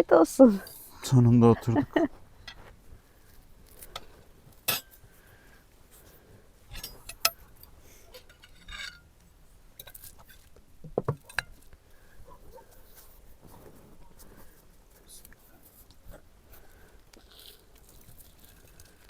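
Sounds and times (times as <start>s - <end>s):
cutlery and plates clinking: 4.7s - 4.9s.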